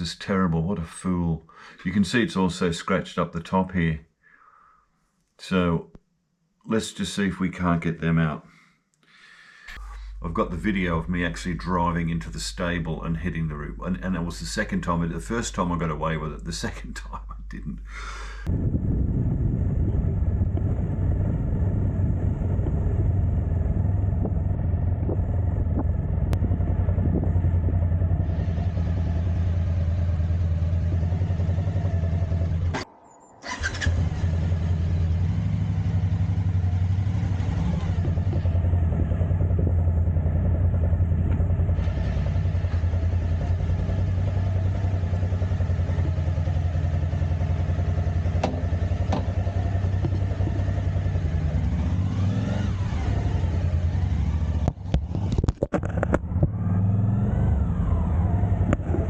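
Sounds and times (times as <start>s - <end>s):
motorcycle engine running: 18.5s - 32.8s, 33.5s - 59.0s.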